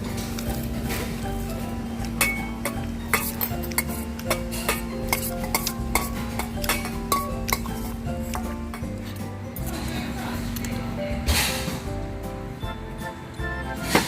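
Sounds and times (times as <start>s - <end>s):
background music: 0.0s - 14.0s
spoon scraping bowl: 2.3s - 8.9s.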